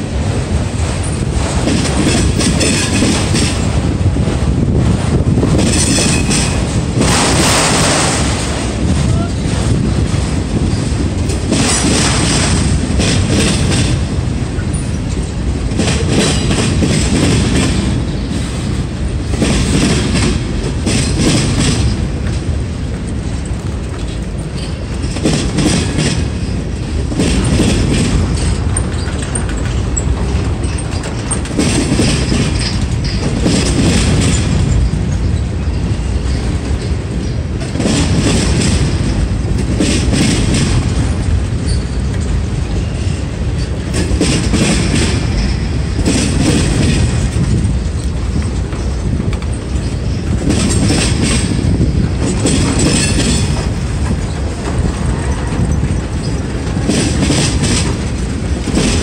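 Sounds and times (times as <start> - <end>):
train wheels rumbling on rail: 0.0 - 59.0
wheels clacking over rail joints: 0.0 - 59.0
faint high wheel squeals: 41.6 - 42.2.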